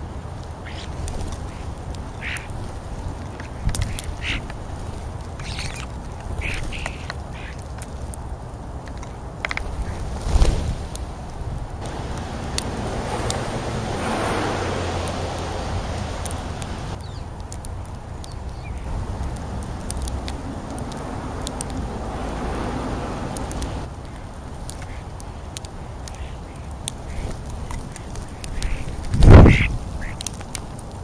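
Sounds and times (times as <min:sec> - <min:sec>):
birds calling: 0:00.0 - 0:08.1, 0:11.8 - 0:30.6
sharp clicks: 0:15.0 - 0:21.8.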